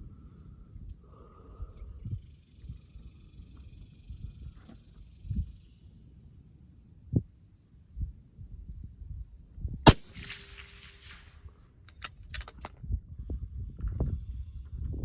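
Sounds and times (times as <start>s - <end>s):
rifle shot with echo: 9.9s - 11.6s.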